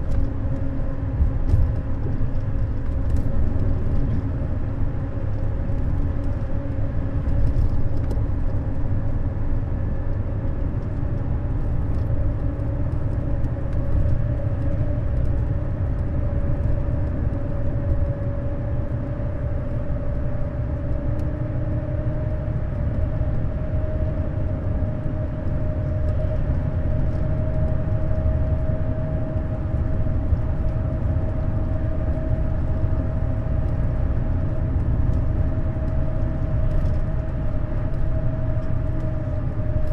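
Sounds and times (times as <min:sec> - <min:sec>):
coach engine and road rumble: 0:00.0 - 0:39.9.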